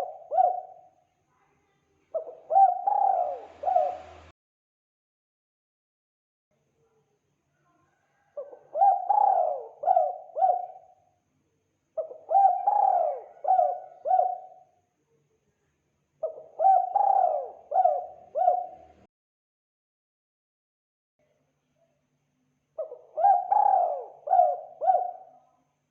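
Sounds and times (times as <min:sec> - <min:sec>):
dove cooing: 0:00.0 - 0:00.9, 0:02.2 - 0:04.3, 0:08.4 - 0:11.0, 0:12.0 - 0:14.7, 0:16.2 - 0:19.1, 0:22.8 - 0:25.4.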